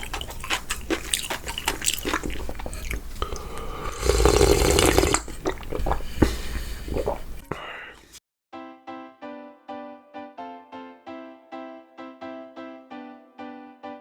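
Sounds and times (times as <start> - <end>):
wet chewing and lip smacks: 0.0 - 3.8, 4.9 - 8.2
noodle slurp: 0.0 - 8.2.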